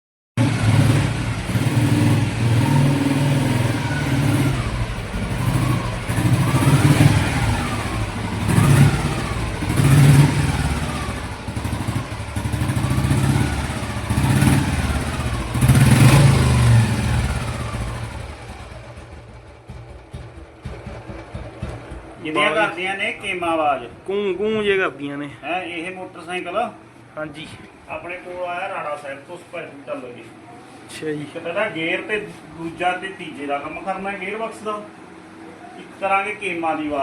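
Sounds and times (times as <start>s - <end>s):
motorcycle engine revving: 0.4s - 22.6s.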